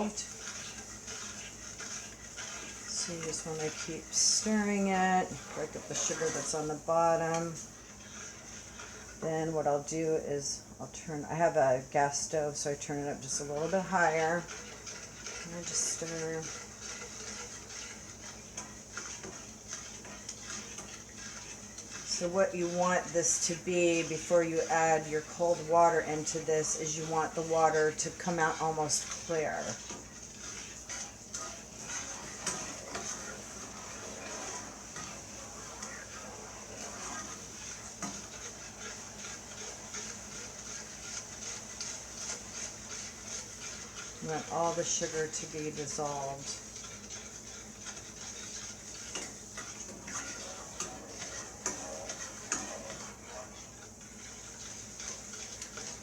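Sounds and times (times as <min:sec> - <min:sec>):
spoon scraping and clinking in pot: 0:13.3 - 0:56.0.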